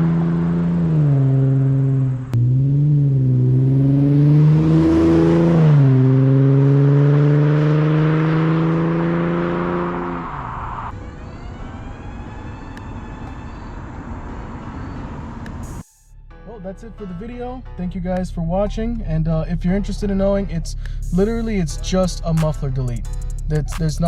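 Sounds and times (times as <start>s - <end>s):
car engine accelerating: 0.0s - 11.3s.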